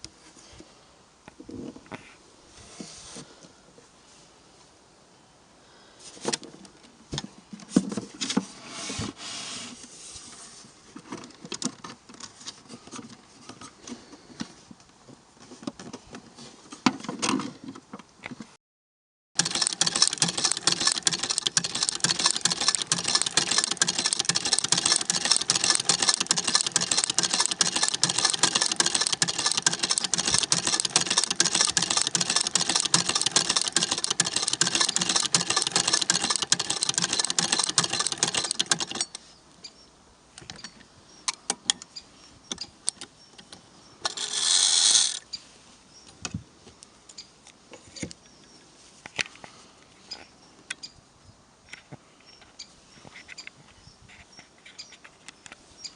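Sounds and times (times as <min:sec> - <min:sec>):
sewing machine clattering: 0:19.4 - 0:39.2
sewing machine clicks and knocks: 0:19.4 - 0:39.2.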